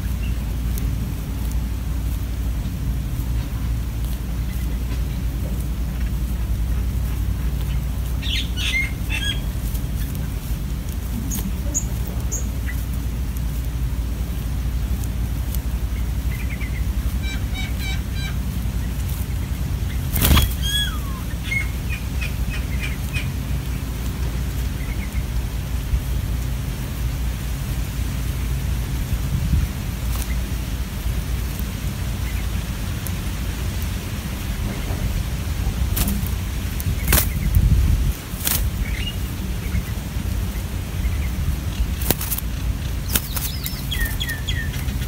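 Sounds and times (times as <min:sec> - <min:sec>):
steady low rumble: 0:00.0 - 0:45.0
bird chirps and whistles: 0:20.2 - 0:21.7.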